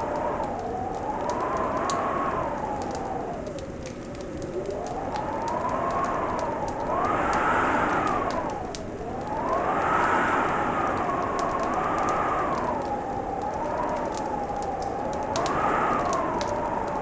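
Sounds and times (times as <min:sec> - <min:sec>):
howling winter wind: 0:00.0 - 0:17.0
wood fire crackling and popping: 0:00.0 - 0:17.0.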